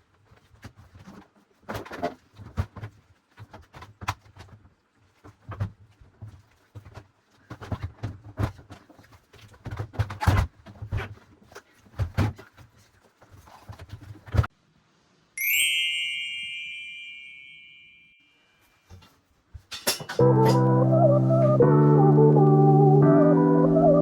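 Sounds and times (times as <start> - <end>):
objects knocking and thumping: 0.4 - 14.5
bright chime: 15.4 - 18.4.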